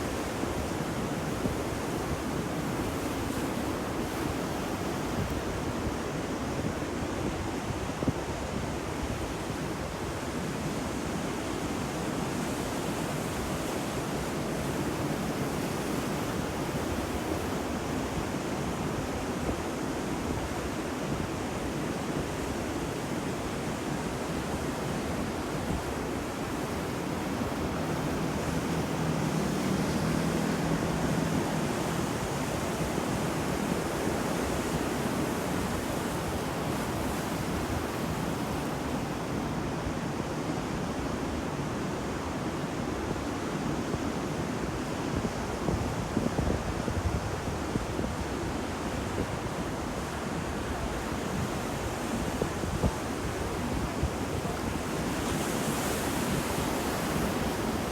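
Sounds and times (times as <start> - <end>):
waves washing onto shore: 0.0 - 57.9.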